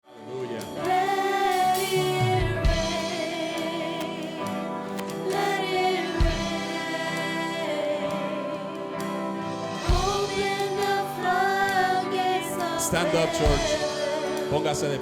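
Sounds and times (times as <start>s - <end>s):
worship band playing: 0.0s - 15.0s
singers with vibrato: 0.9s - 4.5s, 9.8s - 14.6s.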